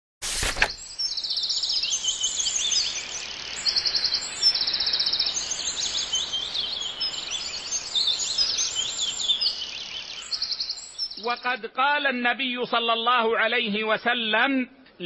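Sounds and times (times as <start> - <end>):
faint steady hiss: 0.3 - 12.1
small birds singing: 0.7 - 11.7.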